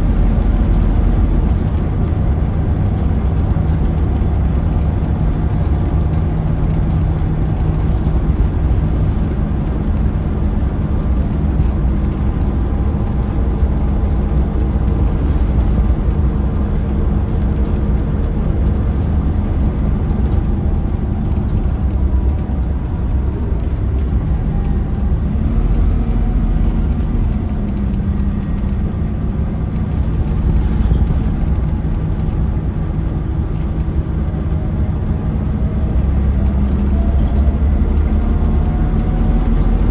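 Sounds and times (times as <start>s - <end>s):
bus diesel engine droning: 0.0s - 39.9s
road noise: 0.0s - 39.9s.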